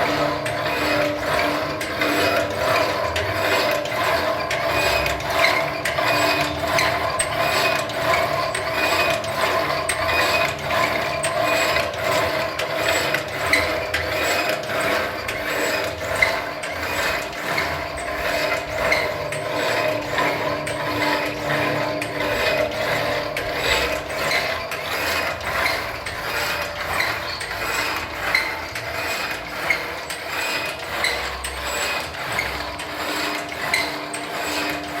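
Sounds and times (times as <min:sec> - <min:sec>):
printing machine motor hum: 0:00.0 - 0:35.0.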